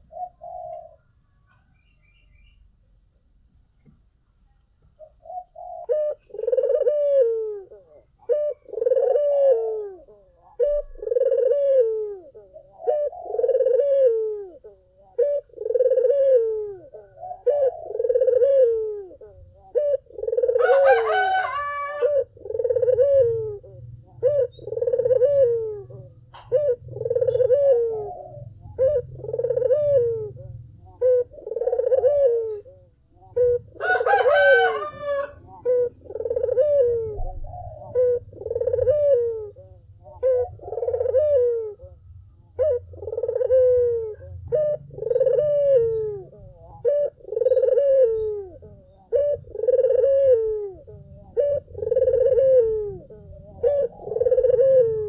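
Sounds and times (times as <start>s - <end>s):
doves cooing: 0.0s - 2.4s, 4.9s - 55.0s
low steady hum: 22.0s - 34.1s, 34.9s - 55.0s.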